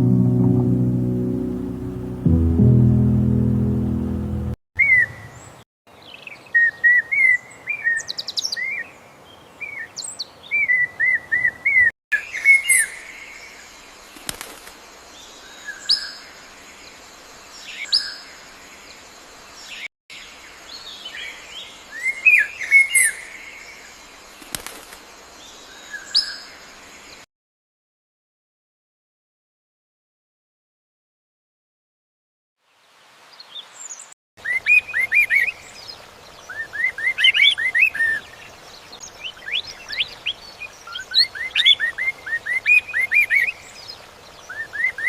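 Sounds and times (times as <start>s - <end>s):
small birds chirping: 33.3s - 45.0s.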